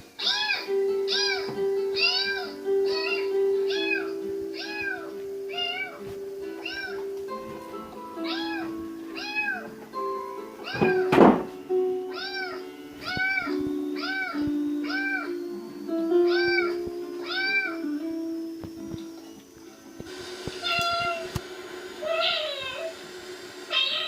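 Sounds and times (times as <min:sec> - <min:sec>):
music of held notes: 0:00.0 - 0:24.0
cat meowing: 0:00.2 - 0:07.1, 0:08.2 - 0:09.7, 0:10.6 - 0:11.4, 0:12.1 - 0:15.4, 0:16.1 - 0:18.0, 0:20.6 - 0:21.3, 0:22.0 - 0:23.0, 0:23.7 - 0:24.0
loud thump: 0:10.8 - 0:11.6.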